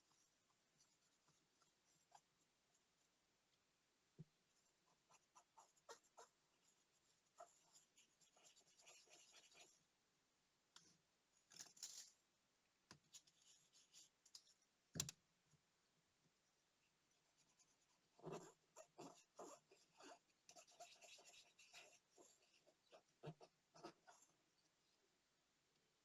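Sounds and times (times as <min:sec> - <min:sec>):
small tools clicking and scratching: 0:11.5 - 0:12.1.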